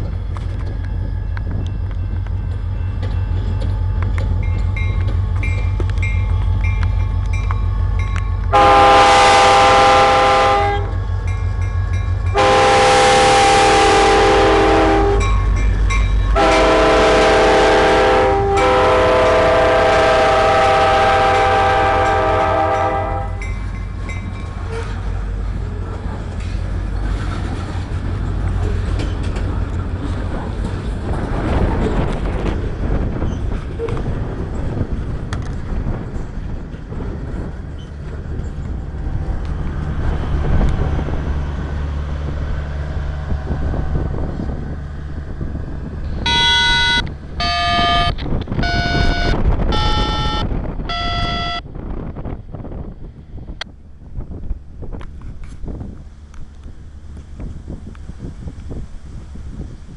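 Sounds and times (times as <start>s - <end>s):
locomotive engine rumble: 0.0s - 59.9s
locomotive air horn blasts: 8.5s - 11.0s, 12.3s - 15.3s, 16.3s - 23.5s, 46.2s - 51.6s.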